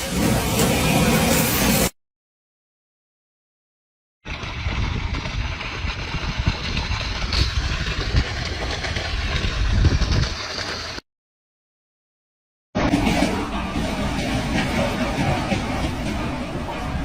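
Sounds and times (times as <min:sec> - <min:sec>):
engine rumbling: 0:04.3 - 0:11.0.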